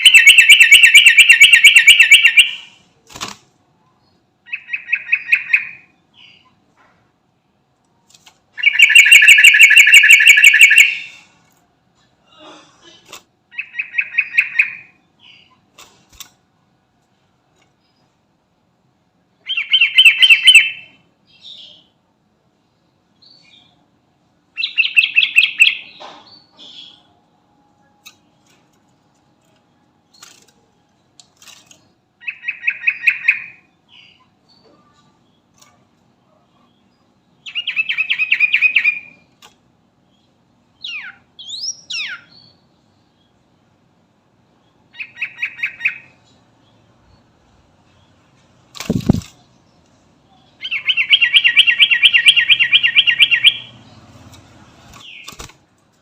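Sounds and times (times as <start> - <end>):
bird singing rapid notes: 0.0 - 2.8, 8.6 - 11.1, 19.4 - 21.5, 48.8 - 49.6, 50.5 - 55.5.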